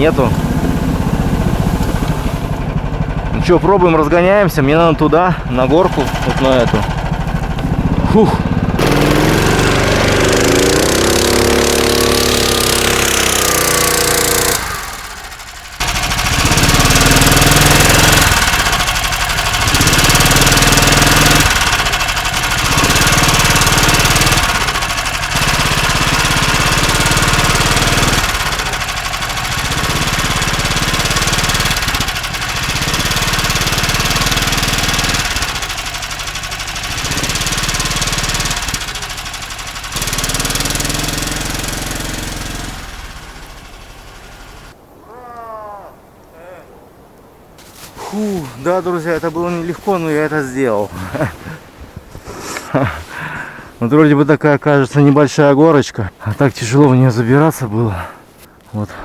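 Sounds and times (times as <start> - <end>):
small engine revving under load: 0.0 - 44.8.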